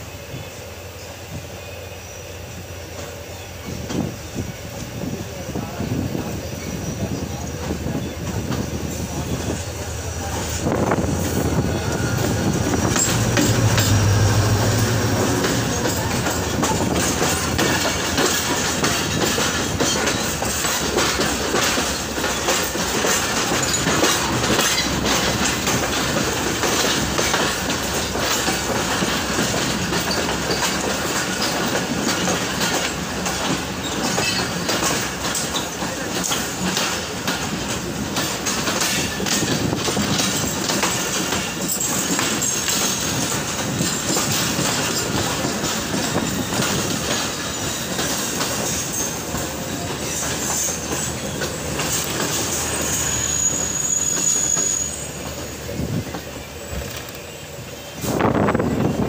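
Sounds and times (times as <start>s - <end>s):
train wheels clattering over joints: 2.8s - 59.0s
high wheel squeal: 6.4s - 18.6s, 29.6s - 34.7s, 43.8s - 59.0s.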